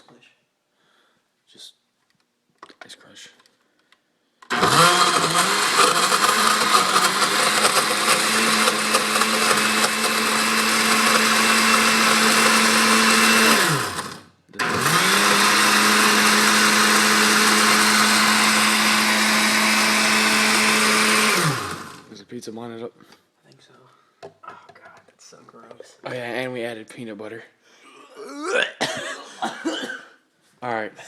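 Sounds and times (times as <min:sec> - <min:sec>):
blender motor running: 0:04.4 - 0:22.1.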